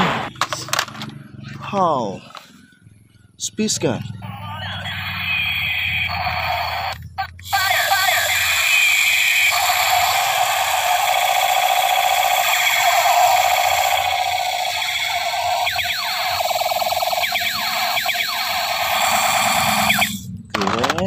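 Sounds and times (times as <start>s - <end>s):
toy space gun electronic wail: 4.7s - 20.3s.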